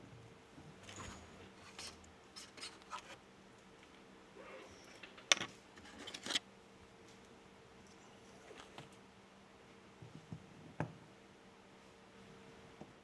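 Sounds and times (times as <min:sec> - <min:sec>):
faint steady hum: 0:00.0 - 0:13.0
small tools being handled: 0:00.8 - 0:03.2, 0:04.9 - 0:06.4.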